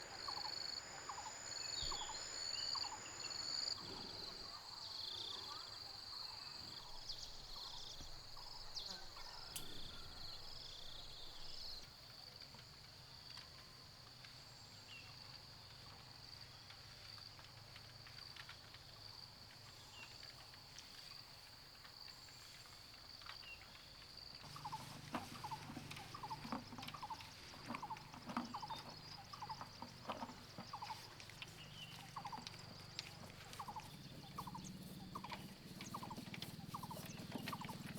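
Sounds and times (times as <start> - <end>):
high-pitched insect drone: 0.0 - 3.8
bird calls: 0.0 - 11.8, 24.4 - 37.9.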